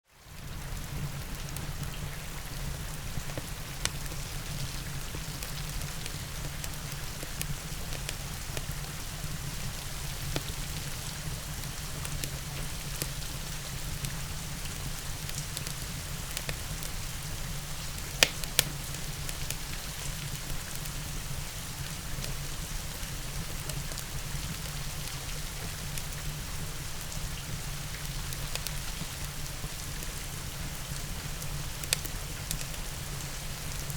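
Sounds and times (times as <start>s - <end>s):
steady rain: 0.2s - 33.9s
wood fire crackling: 1.2s - 33.9s
fire popping: 17.6s - 20.9s.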